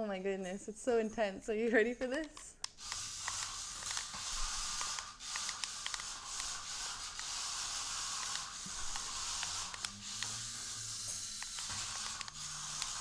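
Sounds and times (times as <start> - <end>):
toy car clicks and knocks: 2.0 - 13.0
toy car motor buzzing: 2.6 - 13.0.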